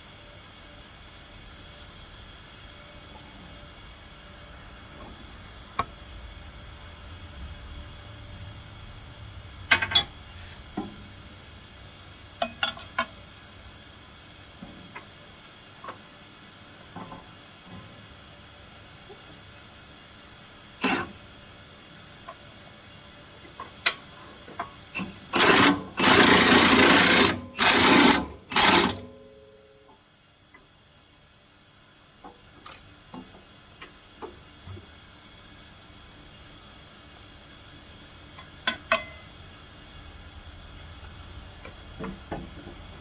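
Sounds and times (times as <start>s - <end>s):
power tool bursts: 25.3s - 29.2s.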